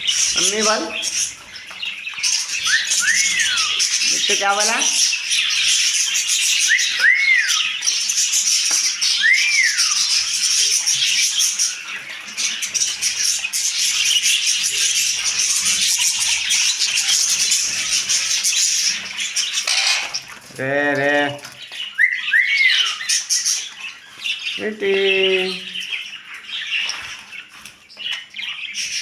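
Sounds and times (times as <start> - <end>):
parrot whistling: 2.6 - 4.1, 6.6 - 7.7, 9.2 - 10.1, 22.0 - 23.0.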